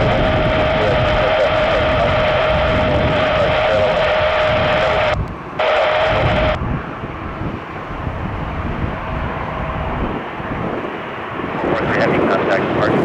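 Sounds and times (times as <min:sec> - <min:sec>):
jet engines whining: 0:00.0 - 0:13.0.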